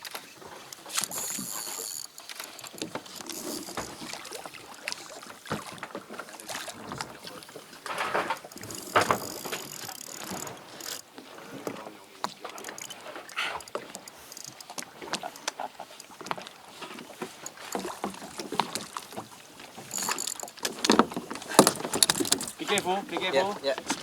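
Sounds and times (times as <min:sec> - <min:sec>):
water sloshing against kayak hull: 0:00.0 - 0:24.0
knocks and clicks from hull: 0:00.6 - 0:24.0.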